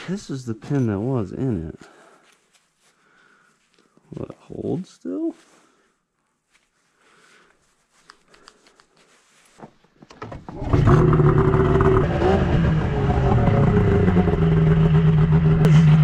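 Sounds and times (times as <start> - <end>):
snowmobile engine idling: 10.8 - 16.0.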